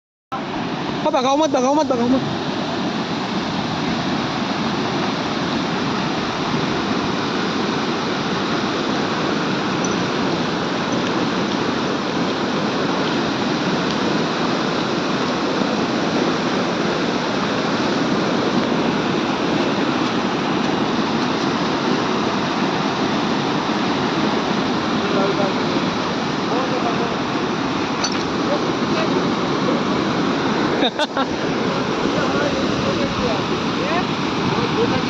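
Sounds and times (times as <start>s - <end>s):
rushing water: 0.3s - 35.0s.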